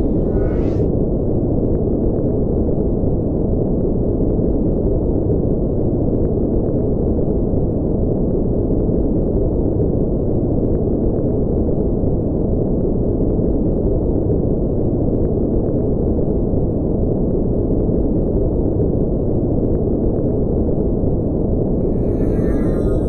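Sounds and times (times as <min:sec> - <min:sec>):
low rumbling engine drone: 0:00.0 - 0:01.6, 0:21.5 - 0:23.0
brief high shimmer: 0:21.8 - 0:23.0.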